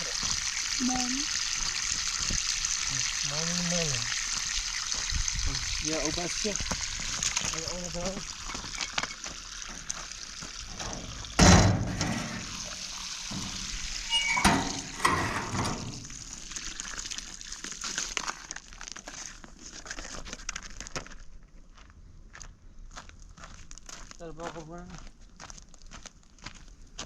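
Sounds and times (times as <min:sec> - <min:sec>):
running water hiss: 0:00.0 - 0:18.2
loud thump: 0:10.8 - 0:12.5.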